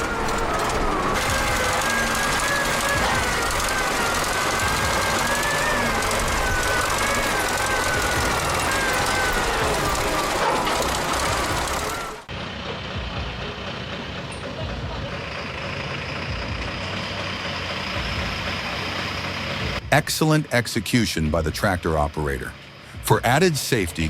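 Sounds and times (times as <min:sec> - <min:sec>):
wavering whine: 0:00.0 - 0:12.3
tractor engine running: 0:00.0 - 0:24.0.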